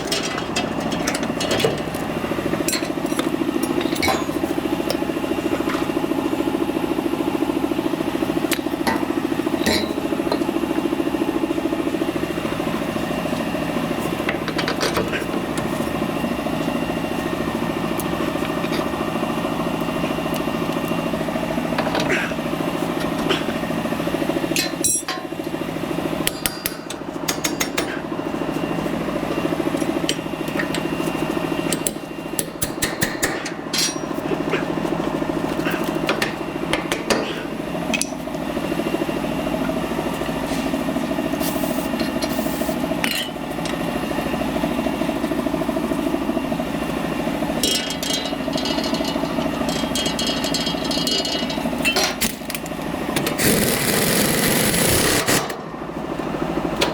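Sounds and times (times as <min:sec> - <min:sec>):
engine running steadily: 0:00.0 - 0:56.9
metal tool knocks and clinks: 0:09.6 - 0:10.4, 0:33.7 - 0:34.2, 0:47.6 - 0:52.2.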